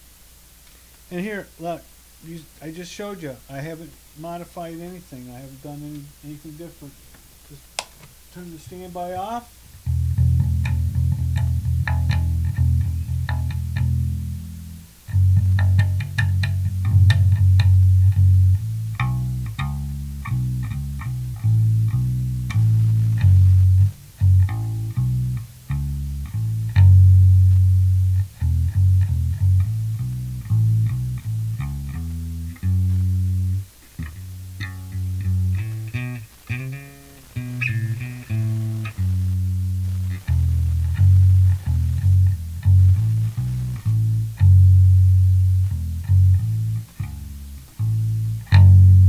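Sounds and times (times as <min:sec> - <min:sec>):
bass guitar plucked notes: 0:09.7 - 0:49.0
string and fret clicks: 0:09.8 - 0:14.2, 0:15.1 - 0:49.0.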